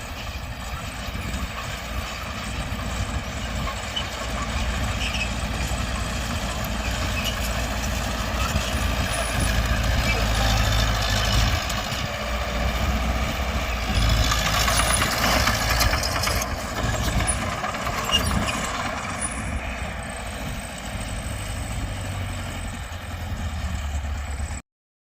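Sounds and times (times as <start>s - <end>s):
heavy diesel machinery rumbling: 0.0s - 24.6s.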